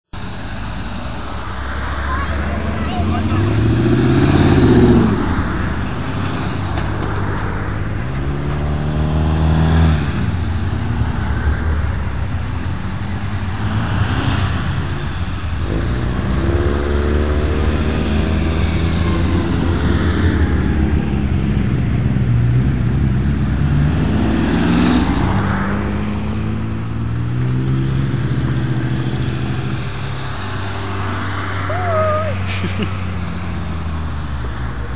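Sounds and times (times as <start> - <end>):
cars accelerating past: 0.2 - 34.9.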